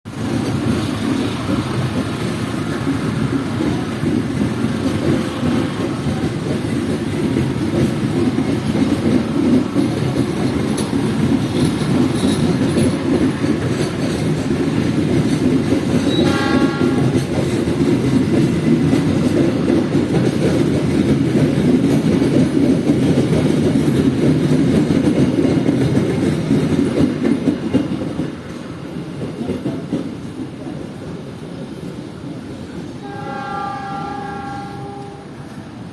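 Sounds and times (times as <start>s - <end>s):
train wheels rumbling on rails: 0.1s - 35.9s
train horn blast: 16.1s - 17.3s, 33.0s - 35.6s.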